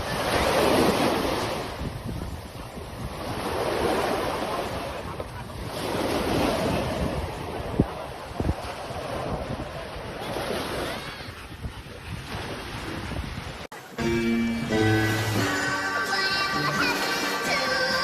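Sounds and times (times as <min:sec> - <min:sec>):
wind rumbling on microphone: 0:00.0 - 0:13.7
sea waves breaking on beach: 0:00.0 - 0:14.0.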